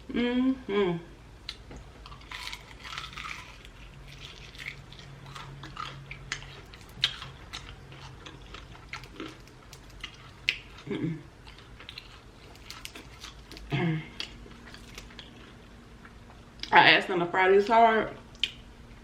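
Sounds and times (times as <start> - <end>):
person humming: 0.0 - 1.2
chewing crispy chicken wings: 1.5 - 16.7.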